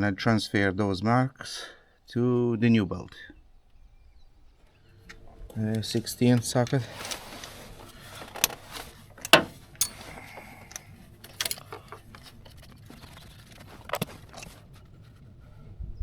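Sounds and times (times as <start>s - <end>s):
metal hand tools clinking: 9.2s - 10.4s, 11.2s - 11.7s.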